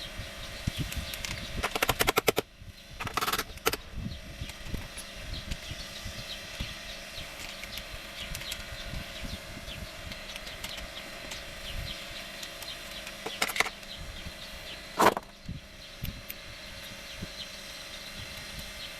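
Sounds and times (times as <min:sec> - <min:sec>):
hand tools clicking on engine: 0:00.9 - 0:03.8, 0:10.1 - 0:11.4, 0:12.4 - 0:14.0.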